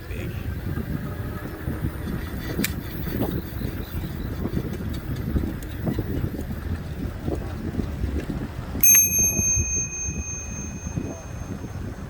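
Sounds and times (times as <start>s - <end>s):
bicycle riding rumble: 0.0s - 12.0s
wind on microphone: 0.3s - 12.0s
bicycle bell ringing: 8.8s - 12.0s.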